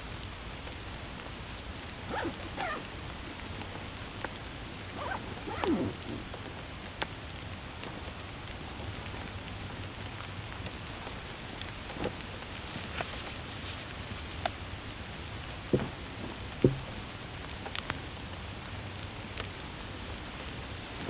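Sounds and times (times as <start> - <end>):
steady rain falling: 0.0 - 21.0
short falling animal calls: 2.1 - 3.8, 4.8 - 6.3.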